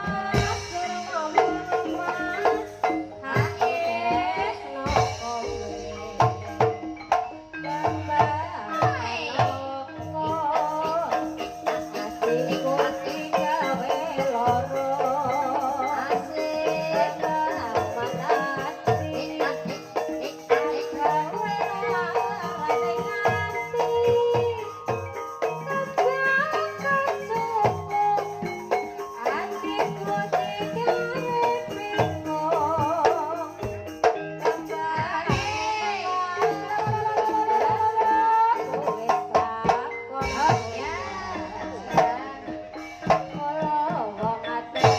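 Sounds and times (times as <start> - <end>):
wavering high melody line: 0.0 - 36.7, 38.7 - 44.9
hand drum strokes: 0.0 - 44.9
tuned percussion melody: 0.0 - 44.9.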